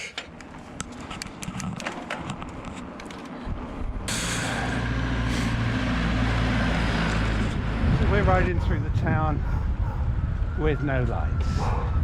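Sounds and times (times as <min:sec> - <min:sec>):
wind on microphone: 0:07.4 - 0:12.0.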